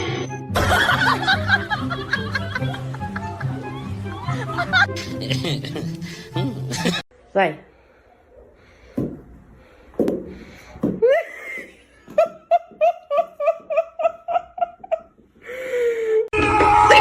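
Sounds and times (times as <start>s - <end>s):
person laughing: 0.6s - 7.0s, 11.0s - 15.1s.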